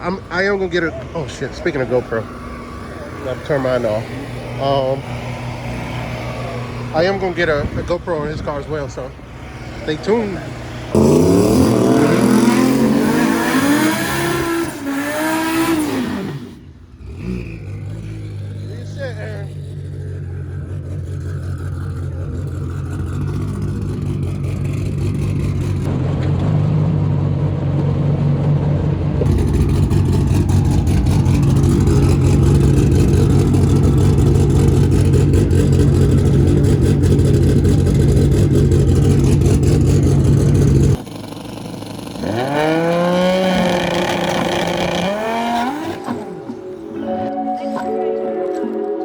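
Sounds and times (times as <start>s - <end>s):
car engine running: 0.0s - 47.0s
rising swooping tones: 43.6s - 49.0s.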